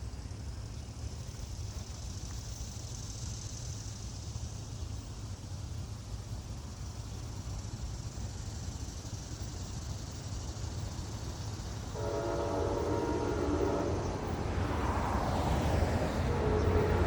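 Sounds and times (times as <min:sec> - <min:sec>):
low steady rumble: 0:08.8 - 0:17.0
locomotive horn: 0:12.0 - 0:17.0.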